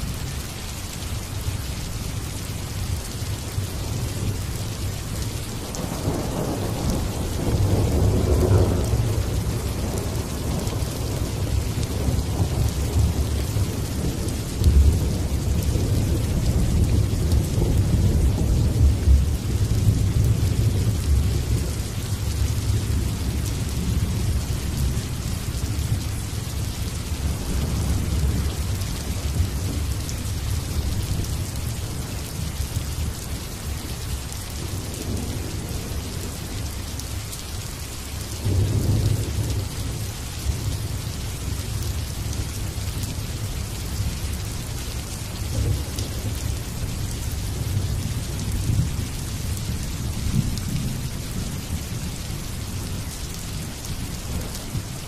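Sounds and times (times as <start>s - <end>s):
rain hissing: 0.0s - 55.0s
thunder rumbling: 5.6s - 32.5s.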